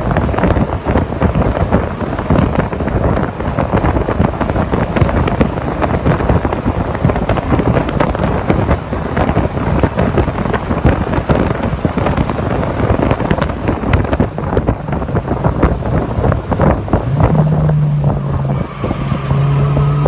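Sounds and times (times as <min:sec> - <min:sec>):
wind buffeting on microphone: 0:00.0 - 0:20.0.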